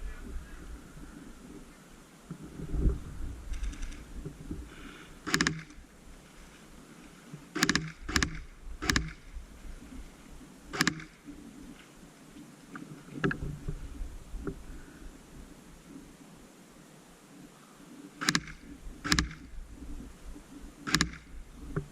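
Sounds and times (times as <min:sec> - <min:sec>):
wind rumble on microphone: 0:00.0 - 0:07.1, 0:07.7 - 0:11.8, 0:12.9 - 0:16.2, 0:18.4 - 0:21.9
microphone handling noise: 0:02.3 - 0:05.8, 0:13.1 - 0:14.7
airsoft gun shots: 0:07.6 - 0:09.3, 0:18.2 - 0:19.4.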